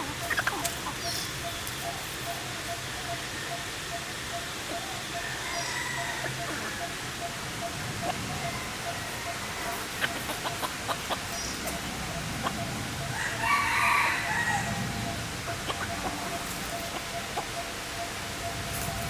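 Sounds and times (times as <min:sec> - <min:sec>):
rooster crowing: 0:05.1 - 0:07.0, 0:08.3 - 0:09.8, 0:13.0 - 0:16.5.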